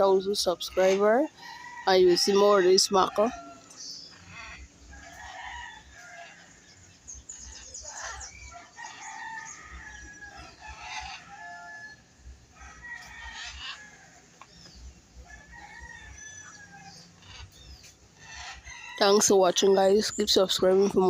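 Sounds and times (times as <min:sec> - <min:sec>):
rooster crowing: 0:08.5 - 0:14.2.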